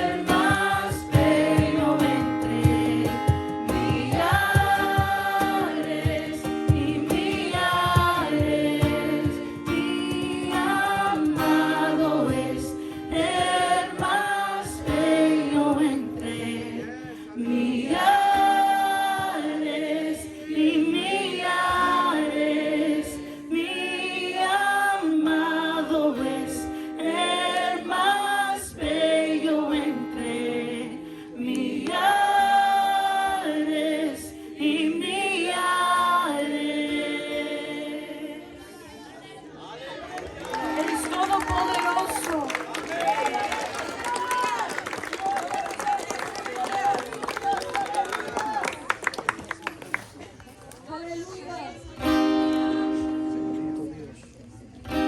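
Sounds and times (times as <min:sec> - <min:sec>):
rhythmic low beat: 0:00.0 - 0:11.4
group singing worship song: 0:00.0 - 0:39.8.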